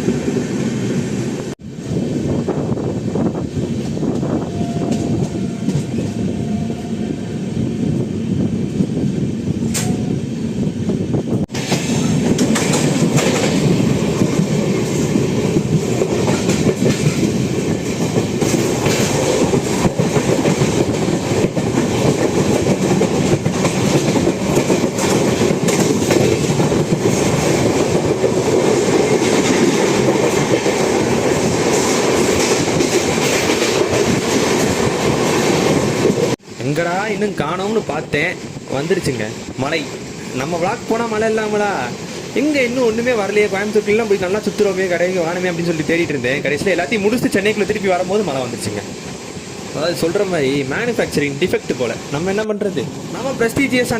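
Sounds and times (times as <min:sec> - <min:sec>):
train running rumble: 0:00.0 - 0:53.9
wheels clattering over rail joints: 0:11.5 - 0:36.4.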